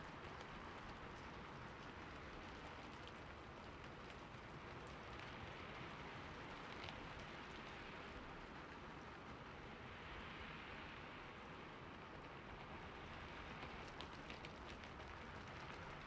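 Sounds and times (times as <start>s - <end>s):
rain falling on a roof: 0.0s - 16.0s.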